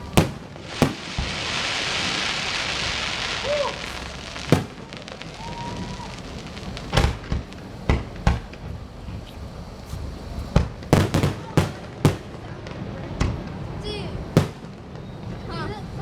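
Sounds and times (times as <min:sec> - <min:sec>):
firework bangs: 0:00.0 - 0:16.0
hissing crackle of fireworks: 0:00.0 - 0:16.0.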